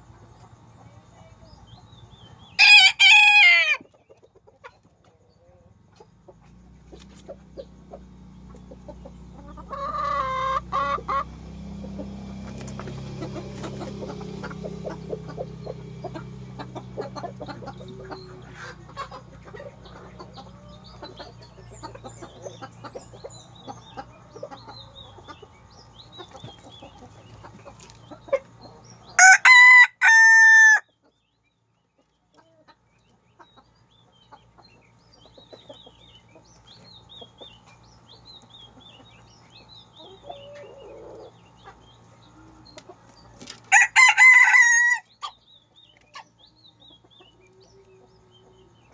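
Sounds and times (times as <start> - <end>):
chickens clucking: 0.0 - 48.9
rooster crowing: 2.6 - 3.8, 29.2 - 30.9, 43.7 - 45.3.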